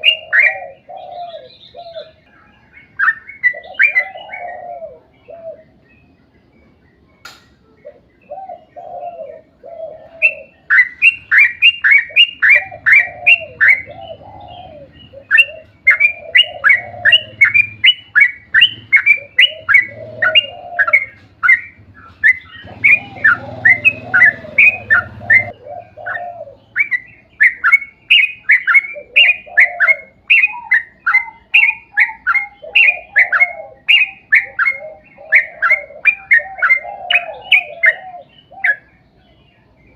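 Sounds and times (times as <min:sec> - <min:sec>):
lower bird warbling: 0:00.0 - 0:39.9
bird chirping sharply: 0:10.2 - 0:34.8.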